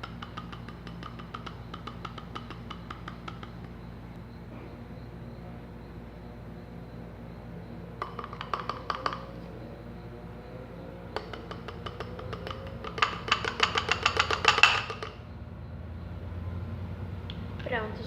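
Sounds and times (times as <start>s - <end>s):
utensil clicking against container: 0.0s - 3.8s, 8.0s - 9.3s, 11.2s - 15.2s.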